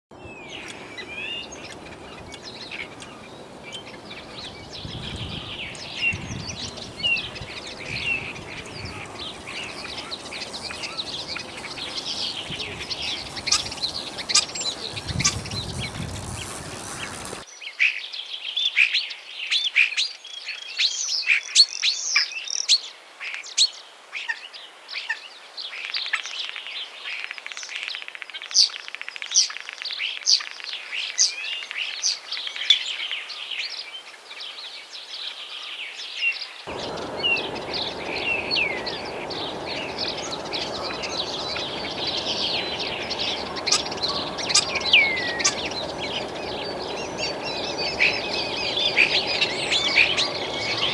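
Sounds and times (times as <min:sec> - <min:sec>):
starling singing: 0:00.4 - 0:17.4, 0:36.7 - 0:50.9
low background noise: 0:36.7 - 0:50.9.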